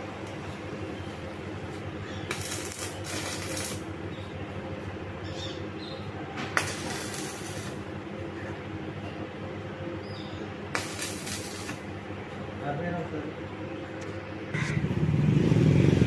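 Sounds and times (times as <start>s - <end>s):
steady machine hum: 0.0s - 15.3s
crackling hiss: 2.2s - 3.9s, 6.5s - 7.9s, 10.7s - 11.9s.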